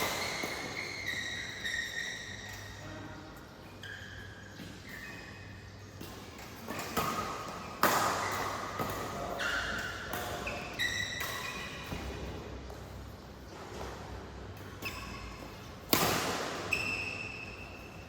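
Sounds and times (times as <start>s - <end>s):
shoes squeaking on court floor: 0.0s - 18.0s
racket striking shuttlecock: 6.0s - 12.2s, 15.8s - 17.4s.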